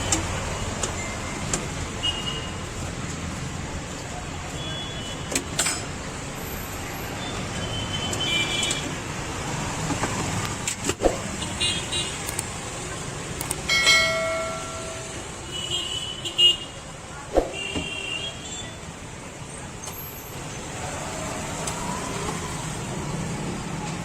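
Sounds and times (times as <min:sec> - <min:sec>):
street traffic passing: 0:00.0 - 0:24.0
car horns beeping: 0:07.2 - 0:09.0, 0:11.4 - 0:12.4, 0:17.5 - 0:18.8.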